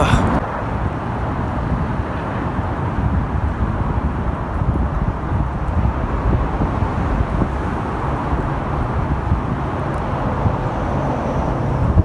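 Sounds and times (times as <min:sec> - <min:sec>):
freeway traffic rushing: 0:00.0 - 0:12.0.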